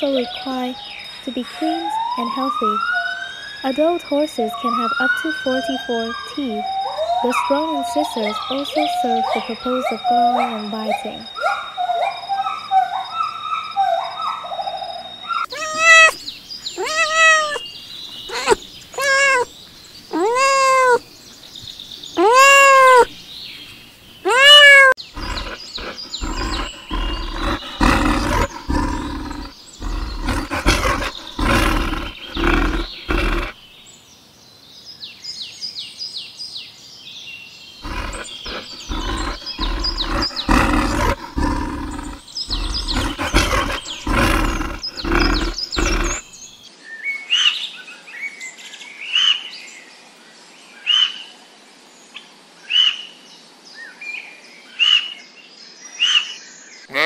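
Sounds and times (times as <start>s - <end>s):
bear roaring: 15.5s - 16.2s, 16.8s - 17.6s, 18.3s - 19.5s, 20.1s - 21.0s, 22.2s - 23.1s, 24.3s - 33.6s, 37.8s - 46.2s
bird chirping rapidly: 15.5s - 19.5s, 20.1s - 21.0s, 22.2s - 23.1s, 24.2s - 33.5s, 37.8s - 46.2s.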